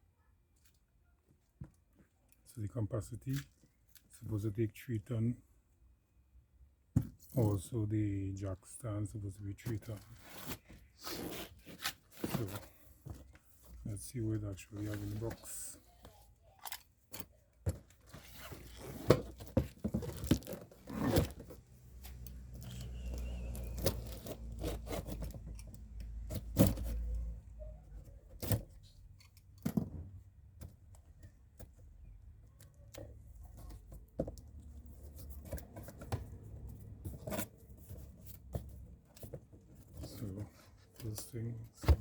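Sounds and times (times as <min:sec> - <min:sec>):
cardboard tearing and scraping: 0:18.2 - 0:21.6, 0:23.5 - 0:25.4.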